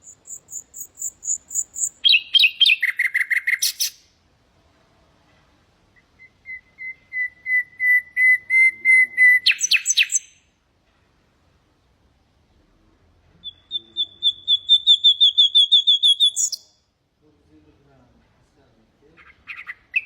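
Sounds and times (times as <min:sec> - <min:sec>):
nightingale singing: 0:00.0 - 0:04.1, 0:06.0 - 0:10.5, 0:13.4 - 0:16.8, 0:19.2 - 0:20.0.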